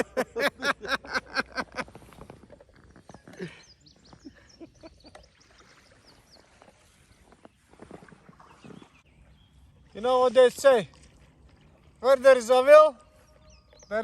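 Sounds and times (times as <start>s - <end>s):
small bird chirping: 2.7s - 7.7s.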